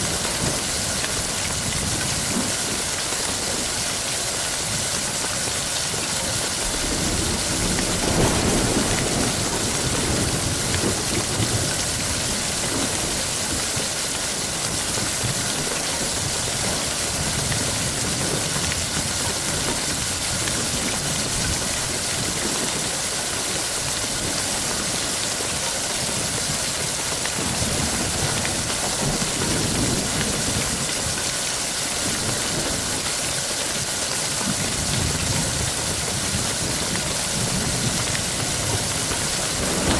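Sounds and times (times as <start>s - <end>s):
heavy rain falling: 0.0s - 39.9s
thunder rolling: 6.6s - 13.6s, 34.8s - 39.9s.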